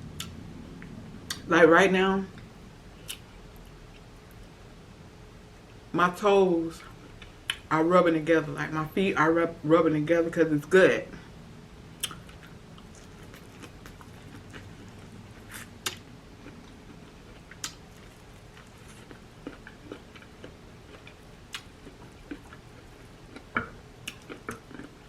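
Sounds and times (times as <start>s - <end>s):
wet mouth clicks and smacks: 12.0s - 12.4s
person chewing food: 12.0s - 25.0s.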